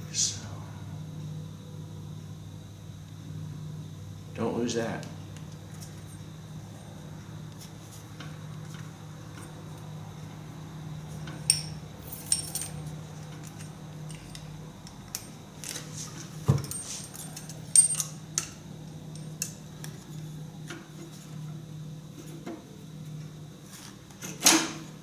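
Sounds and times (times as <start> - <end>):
steady low hum: 0.0 - 24.2
metal tools clinking: 11.3 - 19.5.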